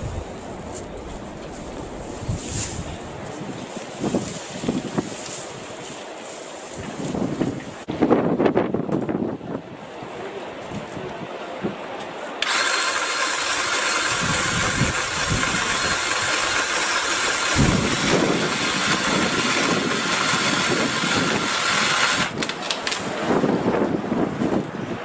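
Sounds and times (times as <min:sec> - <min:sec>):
cordless saw motor whining: 0:12.4 - 0:22.6.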